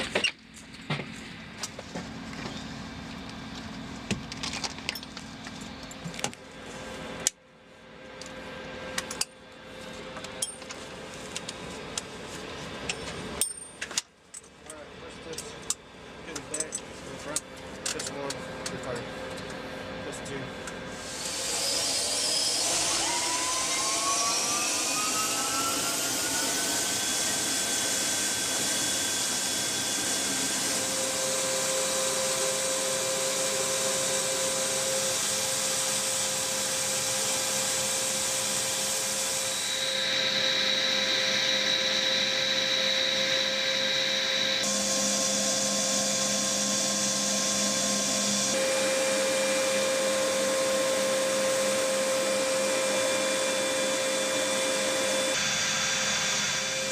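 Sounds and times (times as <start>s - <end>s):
helicopter turbine engines whining: 0.0s - 56.9s.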